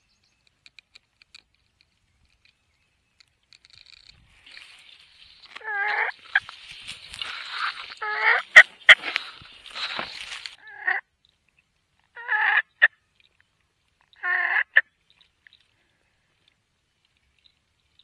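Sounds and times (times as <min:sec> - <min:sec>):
turkeys gobbling: 0:04.5 - 0:11.0, 0:14.2 - 0:14.8.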